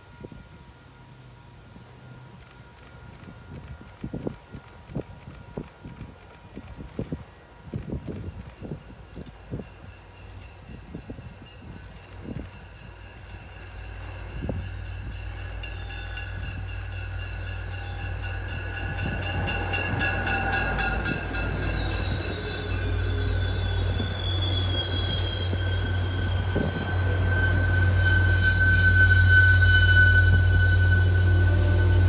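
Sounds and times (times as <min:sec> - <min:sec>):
train rumbling past: 0:00.0 - 0:32.0
high wheel squeal: 0:13.4 - 0:32.0.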